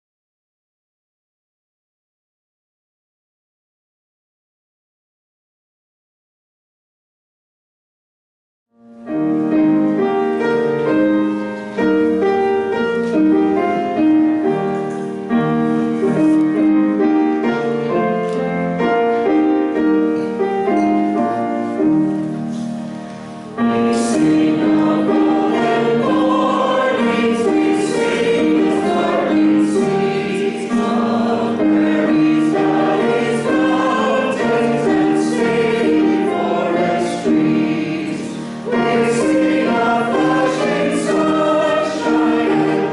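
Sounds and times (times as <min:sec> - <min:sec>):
choir singing: 0:23.6 - 0:42.9.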